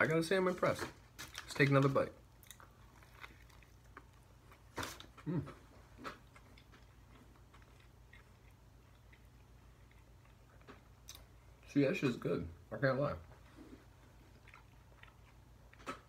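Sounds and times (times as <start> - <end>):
person chewing quietly: 2.3 - 11.7, 13.2 - 16.0
person humming low: 5.2 - 5.6.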